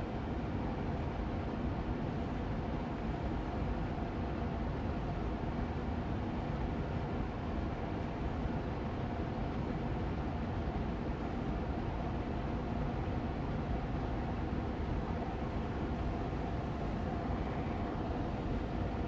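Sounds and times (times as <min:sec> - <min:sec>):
air purifier fan running: 0:00.0 - 0:19.0.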